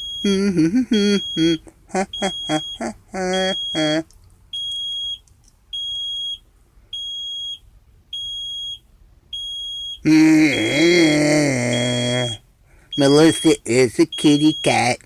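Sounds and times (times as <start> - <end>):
electronic warning beeper: 0.0 - 4.0, 9.4 - 15.0
man calling out: 0.2 - 4.1, 10.0 - 12.4, 13.0 - 15.0.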